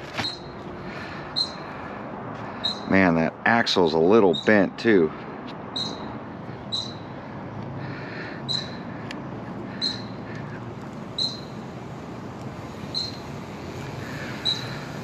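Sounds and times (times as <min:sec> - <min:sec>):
bird calling: 0:00.1 - 0:01.9, 0:02.5 - 0:02.9, 0:05.7 - 0:07.1, 0:07.8 - 0:11.6, 0:12.9 - 0:15.0.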